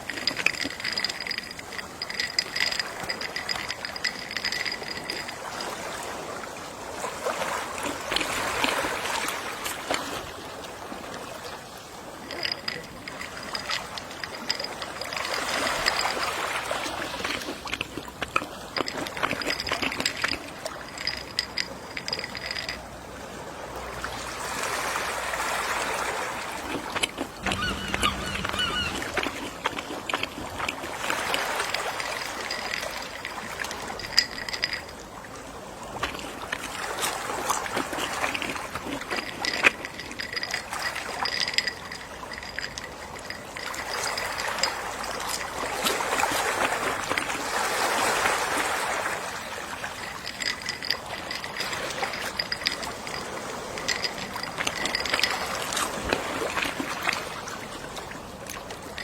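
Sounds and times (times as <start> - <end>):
sea waves washing: 0.0 - 59.0
faint short high pips: 27.4 - 29.2.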